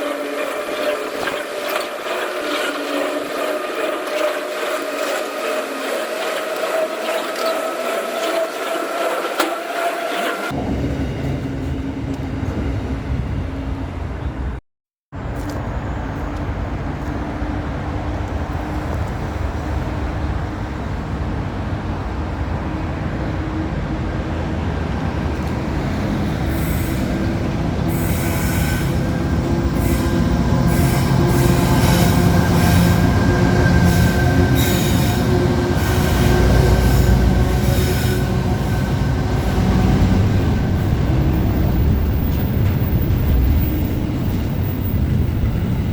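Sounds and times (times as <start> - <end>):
wheels clicking: 0.0 - 10.6
train rumbling on rails: 0.0 - 14.6, 15.2 - 45.9.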